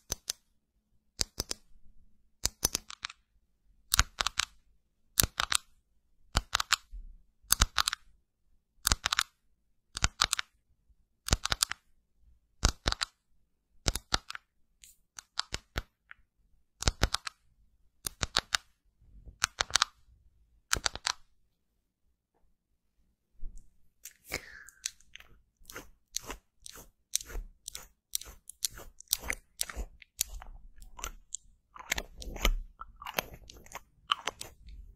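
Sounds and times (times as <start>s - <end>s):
clusters of sharp clicks: 20.7s - 21.3s.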